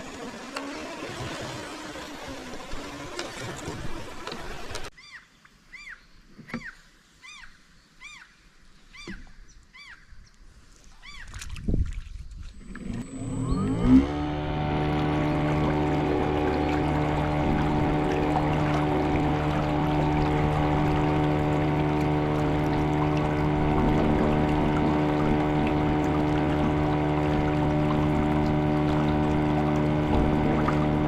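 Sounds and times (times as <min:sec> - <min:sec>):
rising and falling chirps: 0:13.0 - 0:14.2.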